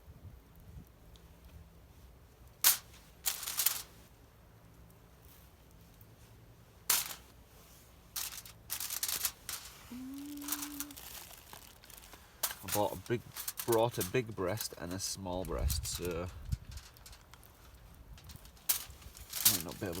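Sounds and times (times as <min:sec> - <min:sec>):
wrapping rustling: 0:02.7 - 0:04.1, 0:06.9 - 0:20.0.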